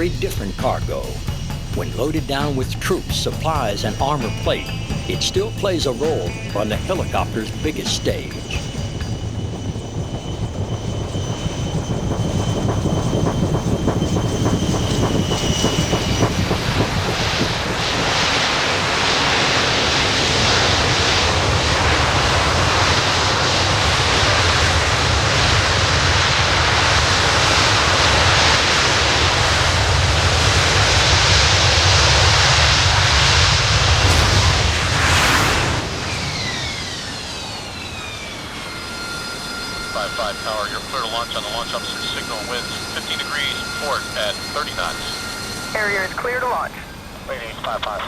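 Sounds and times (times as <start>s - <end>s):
helicopter rotor and turbine: 0.0s - 48.0s
thin high whine: 0.0s - 48.0s.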